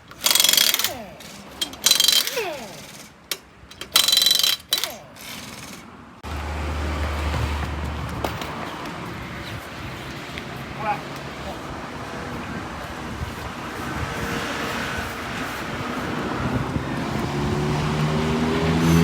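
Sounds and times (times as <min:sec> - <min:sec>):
pneumatic impact wrench bursts: 0:00.0 - 0:05.9.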